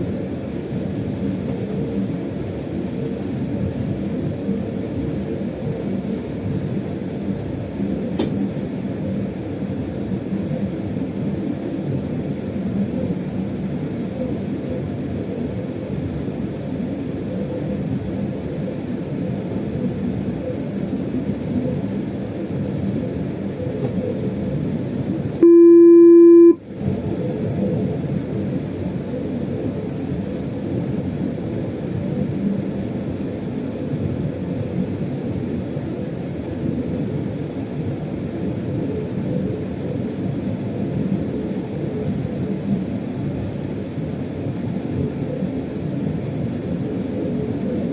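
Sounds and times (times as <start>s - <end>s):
loud electronic beep: 25.4s - 26.6s.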